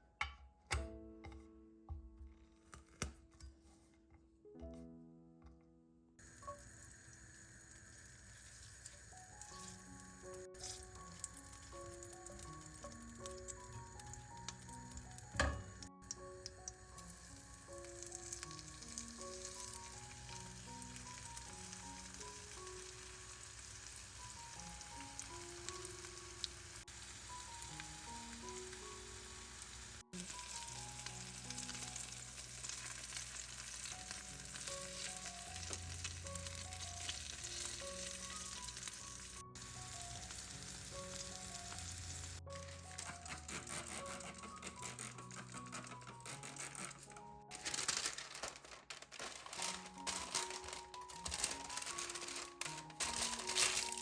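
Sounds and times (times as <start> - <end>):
soft background music: 0.0 - 54.0
food sizzling in hot oil: 6.2 - 43.3, 49.3 - 54.0.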